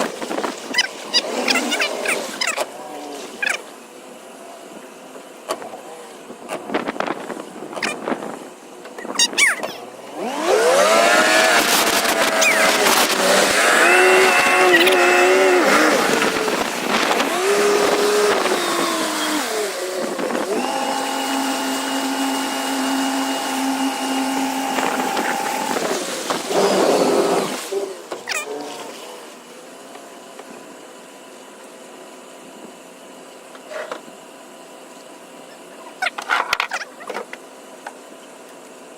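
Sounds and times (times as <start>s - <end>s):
boat engine throttling up: 0.0s - 30.6s.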